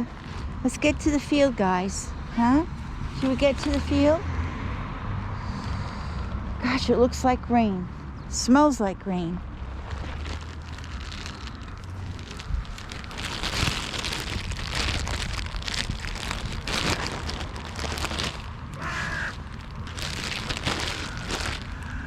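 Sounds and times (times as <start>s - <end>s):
wind buffeting microphone: 9.4s - 18.9s
crows cawing: 18.7s - 19.5s.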